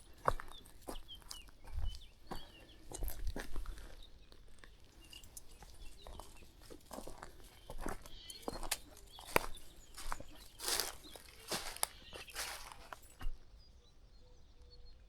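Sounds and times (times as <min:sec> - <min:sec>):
footsteps on a path: 0:00.0 - 0:13.5
faint bird chirps: 0:00.1 - 0:15.0.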